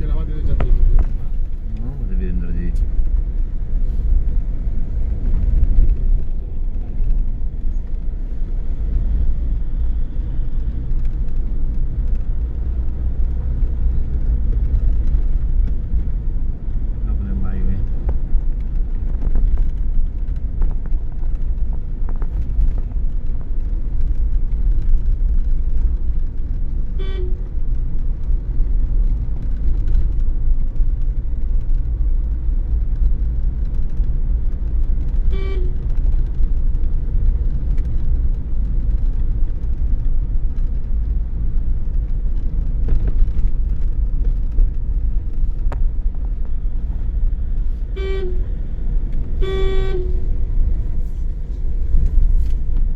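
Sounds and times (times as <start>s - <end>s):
car engine and tyres rumbling: 0.0s - 52.9s
car horn toots: 27.0s - 27.5s, 35.3s - 35.9s, 47.9s - 48.5s, 49.4s - 50.3s.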